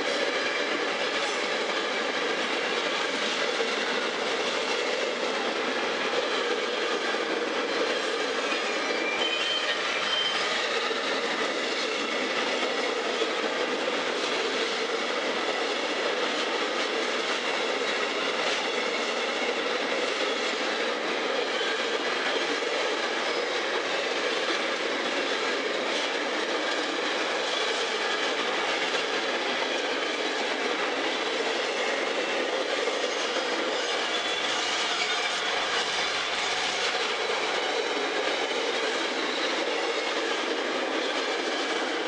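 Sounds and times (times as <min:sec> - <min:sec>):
steel wheels on rails: 0:00.0 - 0:42.0.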